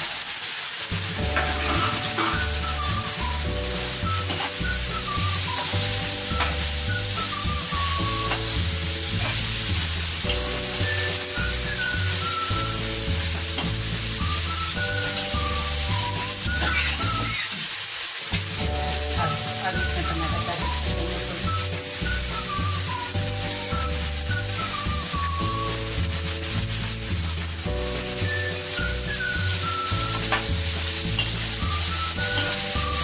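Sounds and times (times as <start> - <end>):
food sizzling in a frying pan: 0.0 - 33.0
background music with bass: 1.0 - 17.4, 18.6 - 33.0
spoon scraping a pan: 1.3 - 2.5, 4.2 - 4.6, 8.2 - 9.7, 32.2 - 32.7.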